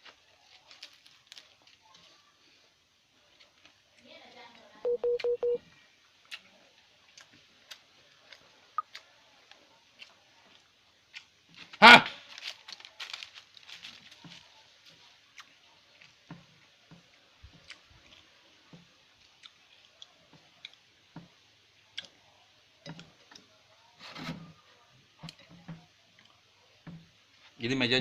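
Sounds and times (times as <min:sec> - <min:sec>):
chewing and mouth clicks: 0:03.3 - 0:03.8, 0:06.2 - 0:11.7, 0:12.6 - 0:16.2, 0:16.9 - 0:23.5, 0:25.2 - 0:26.5.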